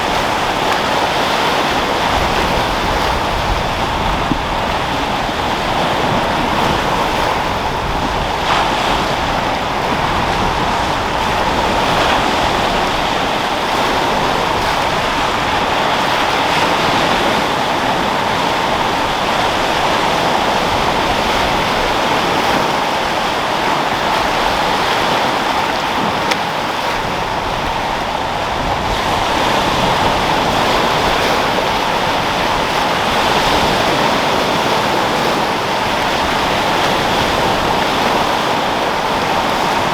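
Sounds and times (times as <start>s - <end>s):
sea waves breaking: 0.0s - 39.9s
wind: 0.0s - 39.9s.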